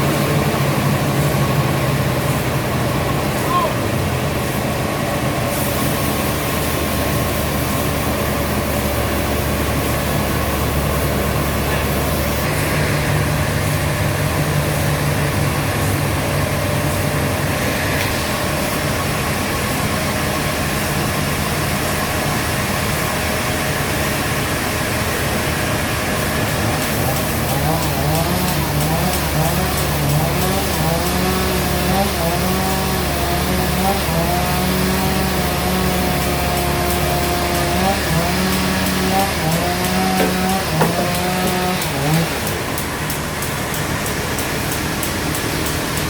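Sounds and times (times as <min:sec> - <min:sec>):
heavy sawmill machinery drone: 0:00.0 - 0:46.0.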